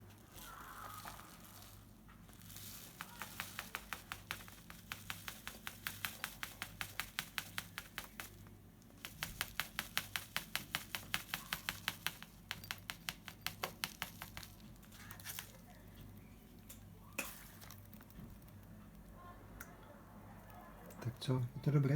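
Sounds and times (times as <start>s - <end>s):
bird beak clicking: 2.6s - 15.7s.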